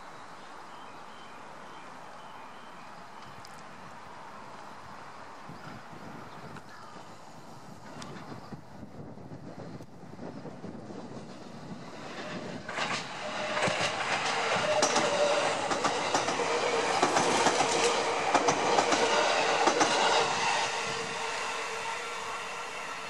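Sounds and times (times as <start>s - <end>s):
train whine: 7.7s - 23.0s
train wheels clicking over rail joints: 10.6s - 21.2s.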